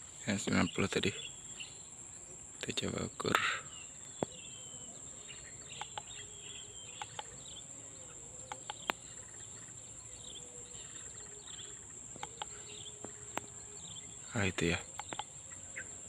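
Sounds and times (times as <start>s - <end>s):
bird chirps: 0.0s - 16.0s
crickets droning: 0.0s - 16.0s
sharp clicks: 5.7s - 6.2s, 7.0s - 7.4s, 8.5s - 9.0s, 12.1s - 13.5s, 14.9s - 15.4s.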